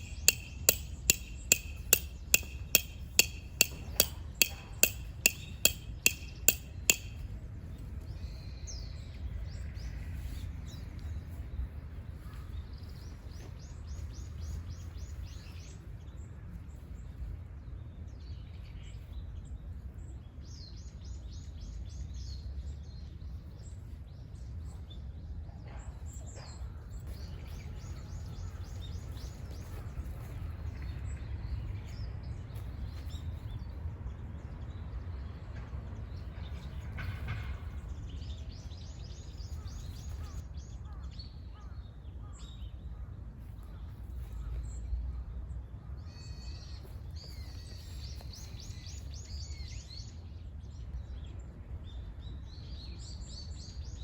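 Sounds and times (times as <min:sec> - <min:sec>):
birds singing trilled phrases: 0:00.0 - 0:08.9.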